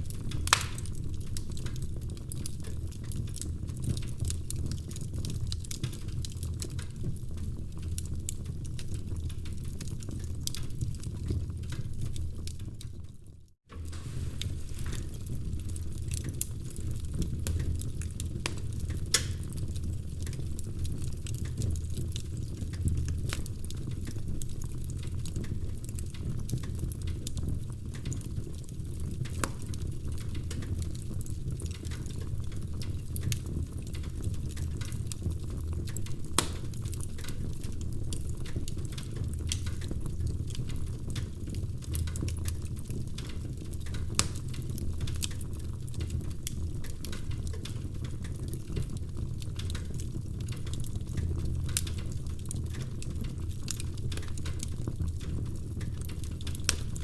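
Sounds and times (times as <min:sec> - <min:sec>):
loud fire pops: 0:00.0 - 0:06.7, 0:13.7 - 0:23.6, 0:28.0 - 0:33.2, 0:33.9 - 0:37.5, 0:43.4 - 0:44.8
low rumble of flames: 0:00.0 - 0:57.0
wood fire crackling: 0:00.0 - 0:57.0.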